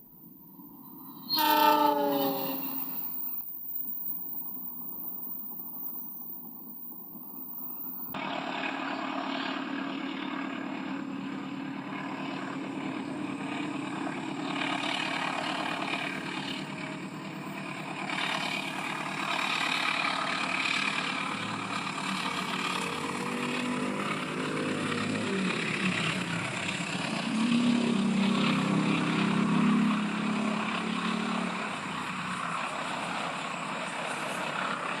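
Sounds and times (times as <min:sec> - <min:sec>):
low engine hum: 0:08.1 - 0:35.0
train rumbling clatter on track: 0:09.2 - 0:35.0.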